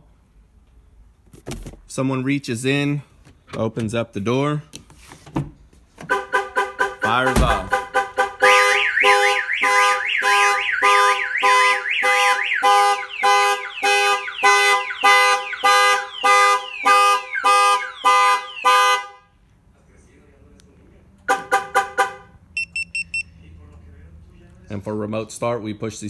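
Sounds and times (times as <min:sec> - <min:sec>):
car horn honking in pulses: 0:06.0 - 0:19.3, 0:21.3 - 0:23.2
car alarm siren warbling: 0:06.1 - 0:19.1.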